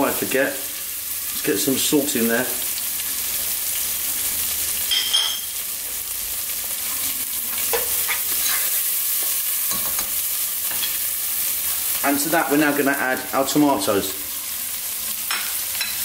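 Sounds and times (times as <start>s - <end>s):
onions and spices frying: 0.0s - 16.0s
spoon scraping a pot: 7.5s - 11.0s.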